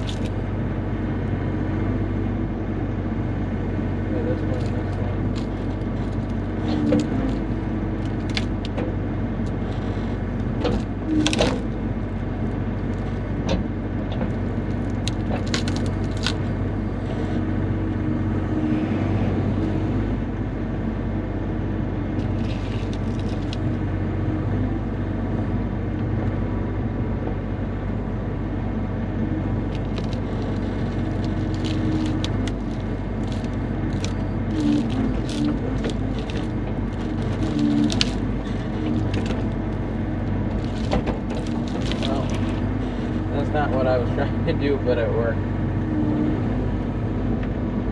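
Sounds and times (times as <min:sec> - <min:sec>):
excavator diesel engine running: 0:00.0 - 0:47.9
logs knocking and clunking: 0:04.6 - 0:11.8, 0:29.7 - 0:43.9.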